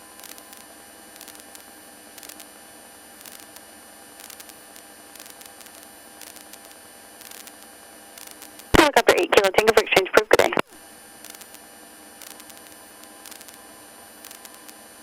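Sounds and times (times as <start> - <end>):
intercom audio hiss: 8.8 - 10.7.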